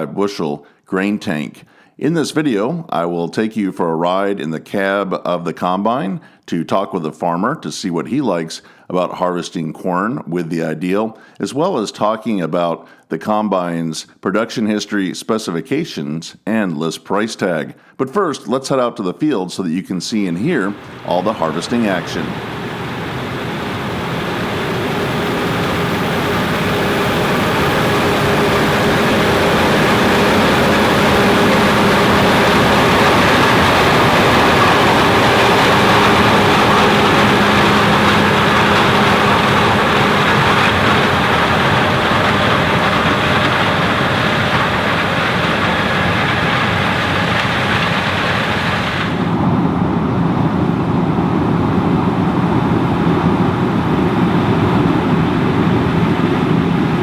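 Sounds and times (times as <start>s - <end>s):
combine harvester running: 20.6s - 57.0s.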